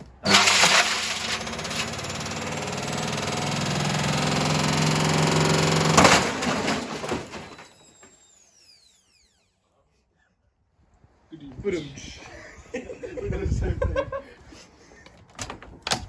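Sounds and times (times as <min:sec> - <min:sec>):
washing machine rattling and grinding: 0:00.2 - 0:07.6
loud crash: 0:05.9 - 0:07.8
motor hum: 0:07.2 - 0:09.5.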